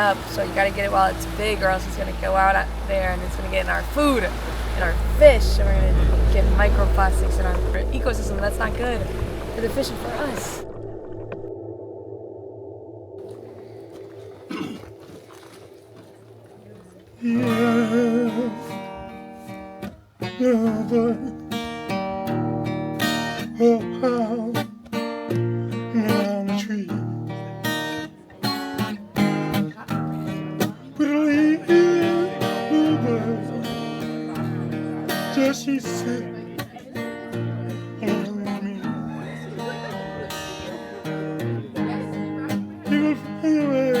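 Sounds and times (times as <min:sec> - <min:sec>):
strummed acoustic guitar: 0:00.0 - 0:10.6, 0:13.3 - 0:44.0
person singing: 0:17.2 - 0:19.0, 0:30.7 - 0:36.8, 0:38.0 - 0:41.4.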